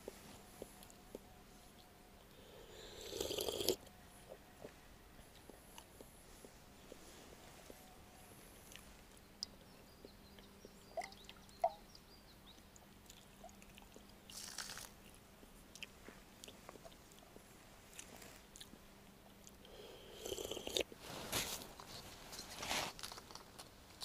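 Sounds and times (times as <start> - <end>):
chewing and crunching: 0.0 - 7.9, 13.0 - 21.0
rustle: 14.1 - 19.2, 20.2 - 24.0.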